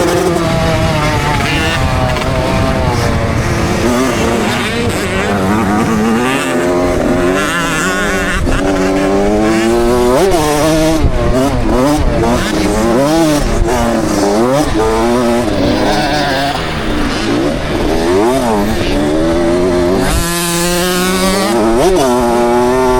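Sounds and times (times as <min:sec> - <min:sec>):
wind rumble at helmet: 0:00.0 - 0:15.8
motocross bike engine revving: 0:00.0 - 0:22.9.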